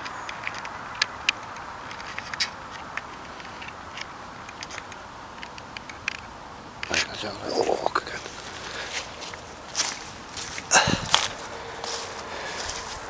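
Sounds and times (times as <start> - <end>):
small clicks and ticks: 0.0 - 10.7
background hiss: 0.0 - 13.0.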